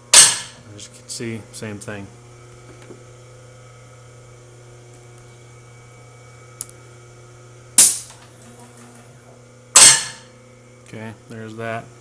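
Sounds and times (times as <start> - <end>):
loud metal clunk: 0.1 - 0.6, 9.8 - 10.3.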